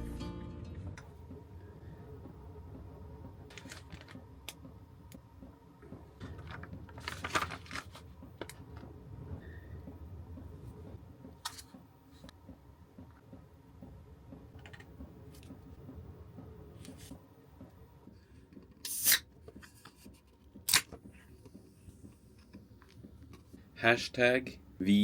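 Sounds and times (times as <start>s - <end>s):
handling noises: 3.3s - 4.7s, 5.8s - 9.0s.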